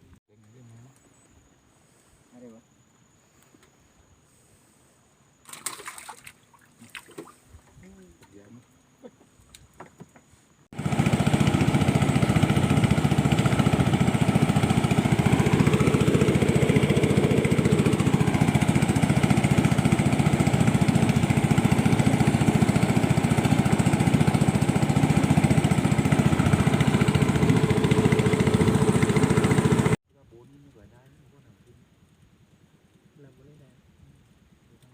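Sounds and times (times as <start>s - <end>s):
small engine running: 10.8s - 30.0s.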